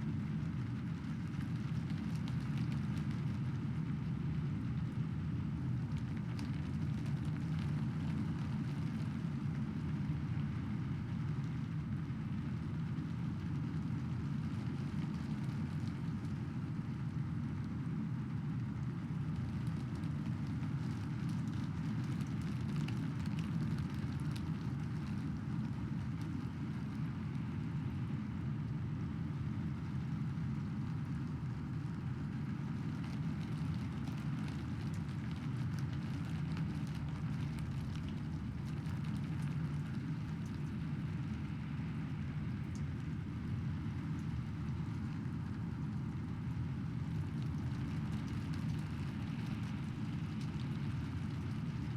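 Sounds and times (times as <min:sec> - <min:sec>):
raindrop ticks: 0:42.7 - 0:42.9.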